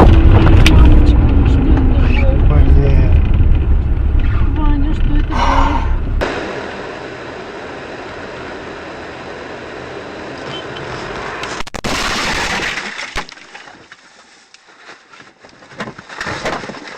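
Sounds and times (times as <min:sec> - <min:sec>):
vehicle and road noise: 0:00.0 - 0:11.8
loud noisy burst: 0:06.0 - 0:10.1.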